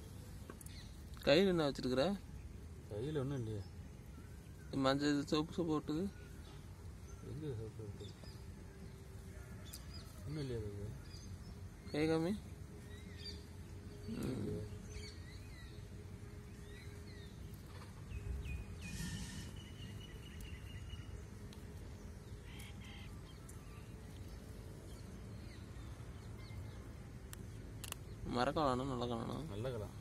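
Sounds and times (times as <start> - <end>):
low outdoor background noise: 0.0 - 30.0
short bird chirps: 18.8 - 21.0.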